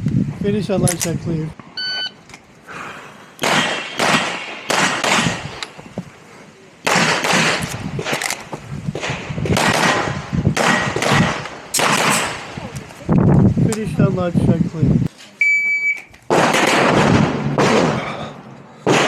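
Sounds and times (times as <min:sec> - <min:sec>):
rapid pistol shots: 0:03.4 - 0:05.6, 0:06.8 - 0:08.3, 0:08.9 - 0:12.6, 0:16.3 - 0:18.1.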